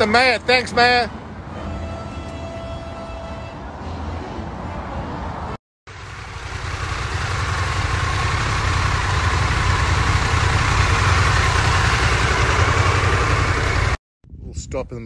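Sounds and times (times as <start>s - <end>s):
motorcycle engine running: 5.9s - 14.0s.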